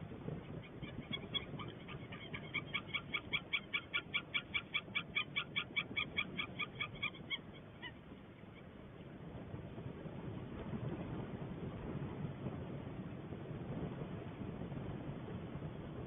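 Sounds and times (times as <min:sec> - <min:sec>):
eagle calling: 0:00.5 - 0:08.0.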